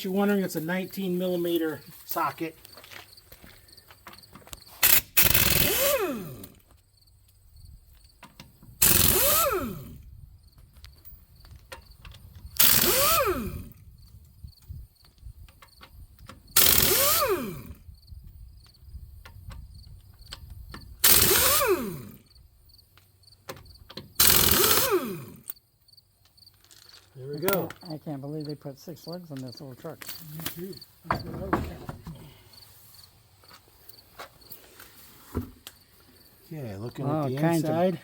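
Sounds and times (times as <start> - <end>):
impact wrench bursts: 4.7 - 6.7, 8.7 - 10.0, 12.5 - 13.8, 16.5 - 17.8, 20.9 - 22.3, 24.0 - 25.6.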